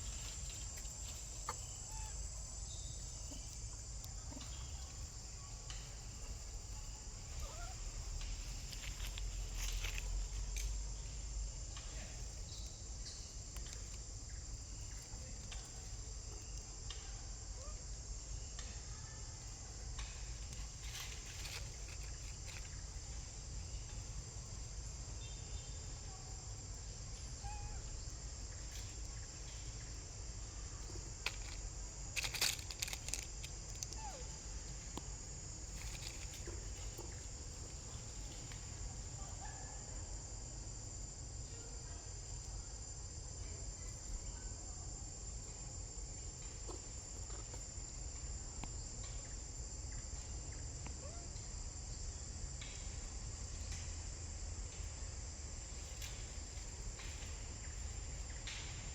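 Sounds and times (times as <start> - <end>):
high-pitched insect chorus: 0.0 - 58.9
sharp clicks and rustles: 32.2 - 34.0.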